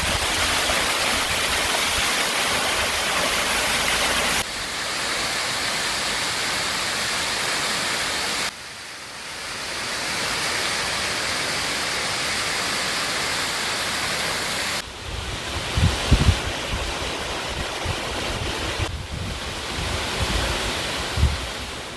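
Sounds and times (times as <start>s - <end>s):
waterfall rushing: 0.0s - 21.9s
wind buffeting microphone: 15.0s - 21.7s.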